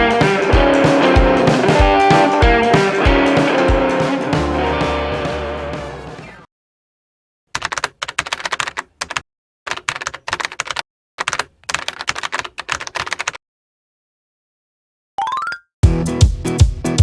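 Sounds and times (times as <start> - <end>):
keyboard typing clicks: 7.6 - 13.4.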